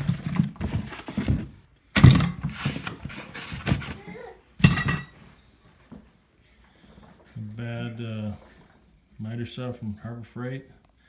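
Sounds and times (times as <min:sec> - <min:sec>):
cardboard rustling and scraping: 0:00.0 - 0:04.2.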